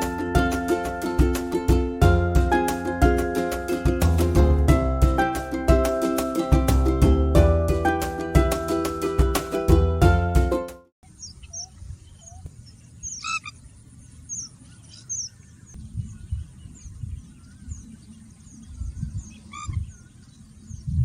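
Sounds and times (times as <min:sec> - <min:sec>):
high bird chirps: 0:11.0 - 0:21.0
loud nasal bird call: 0:11.1 - 0:13.6
wind on microphone: 0:15.7 - 0:21.0.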